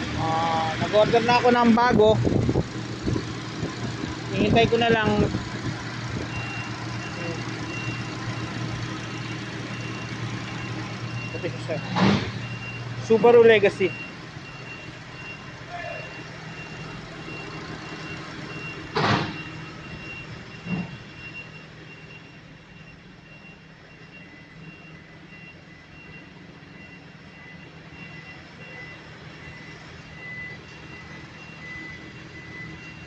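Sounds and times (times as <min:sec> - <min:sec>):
car engine running: 0:00.0 - 0:15.6.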